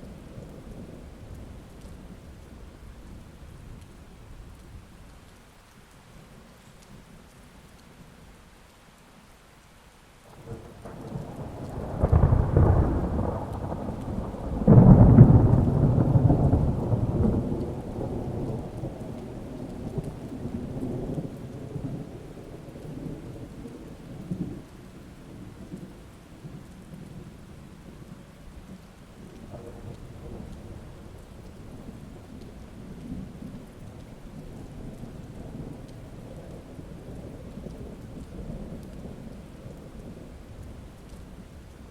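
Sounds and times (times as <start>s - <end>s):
steady rain: 0.0s - 41.9s
thunder rolling: 10.3s - 24.7s.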